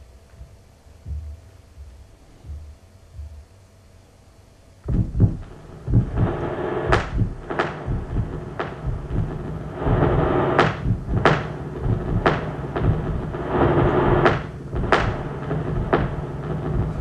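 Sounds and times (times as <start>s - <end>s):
low drone: 4.9s - 17.0s
rushing noise: 4.9s - 17.0s.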